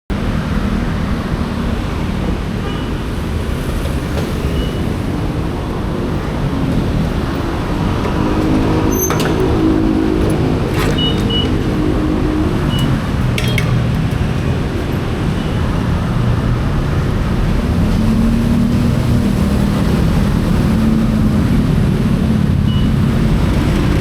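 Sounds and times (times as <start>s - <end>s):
road and wind noise: 0.1s - 24.0s.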